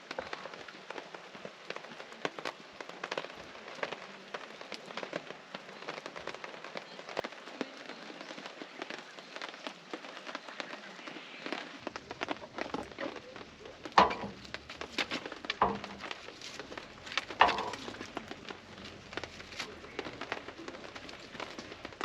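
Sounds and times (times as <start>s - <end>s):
rain on a tarp: 0.0s - 22.0s.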